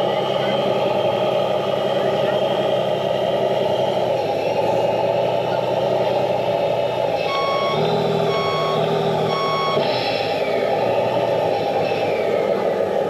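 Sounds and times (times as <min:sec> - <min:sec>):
model truck motor whine: 0:00.0 - 0:13.0
reversing alarm beeps: 0:07.2 - 0:11.3.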